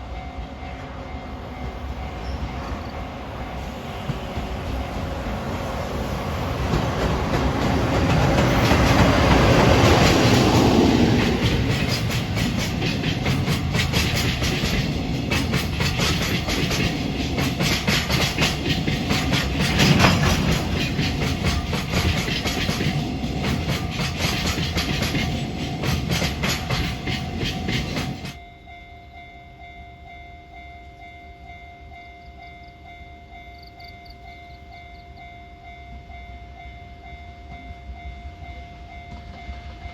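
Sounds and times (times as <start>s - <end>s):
freight train wheels clacking: 1.3s - 28.4s.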